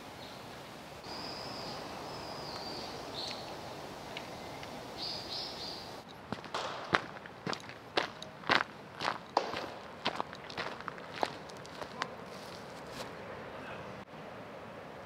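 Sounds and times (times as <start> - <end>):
outdoor background hiss: 0.0 - 15.0
birds calling in high notes: 1.0 - 6.0.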